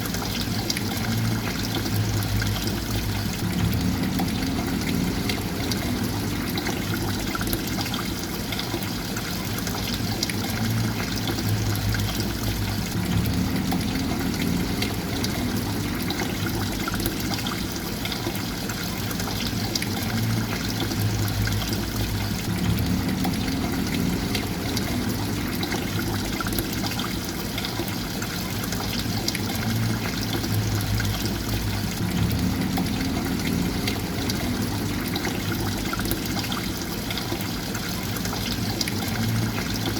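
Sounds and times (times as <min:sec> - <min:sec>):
water trickling and pouring: 0:00.0 - 0:39.9
low hum: 0:01.1 - 0:07.7, 0:10.7 - 0:17.1, 0:20.4 - 0:26.9, 0:29.6 - 0:36.4.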